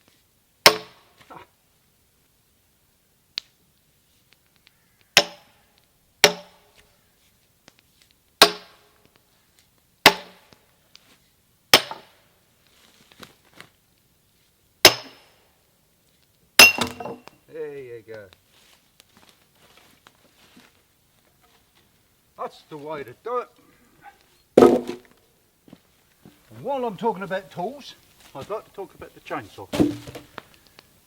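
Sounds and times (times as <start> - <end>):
sledgehammer striking steel wedge: 0.7 - 1.0, 5.2 - 5.5, 6.2 - 6.6, 8.4 - 8.9, 10.1 - 10.5, 11.8 - 12.1, 14.8 - 15.3, 16.6 - 17.3, 24.6 - 25.1, 29.7 - 30.2.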